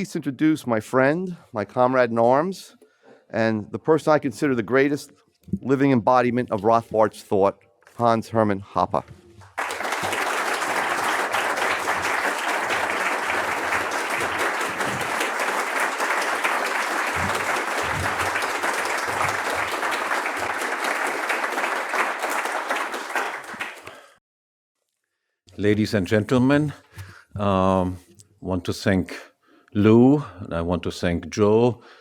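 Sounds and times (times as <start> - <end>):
audience applauding: 9.6 - 24.2.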